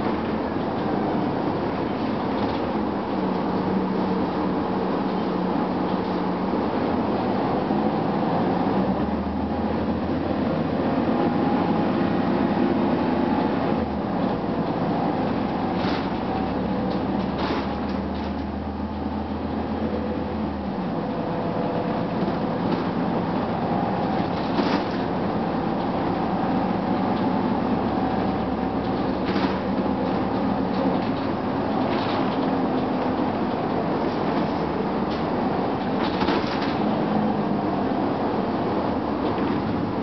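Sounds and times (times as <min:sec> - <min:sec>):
bus engine hum and rumble: 0:00.0 - 0:40.0
sharp rattles and clicks: 0:24.0 - 0:25.2, 0:28.2 - 0:37.0.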